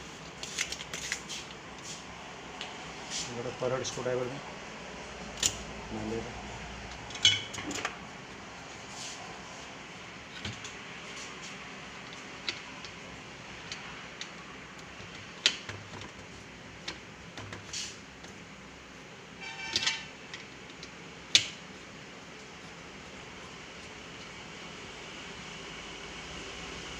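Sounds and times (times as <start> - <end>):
metal tools clicking and tapping: 6.9 - 7.9, 19.4 - 21.6.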